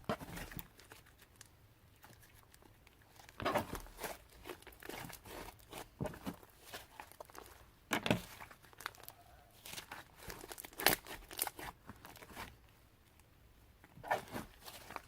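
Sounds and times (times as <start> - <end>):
slime crackling and popping: 8.3 - 12.4.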